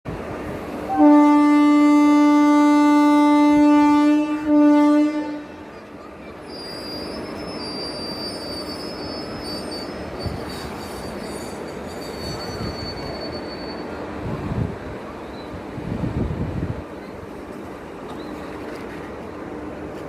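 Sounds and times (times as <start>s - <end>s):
train rumbling: 0.1s - 20.0s
train horn blast: 0.9s - 5.7s
train wheel squeal: 5.8s - 14.2s.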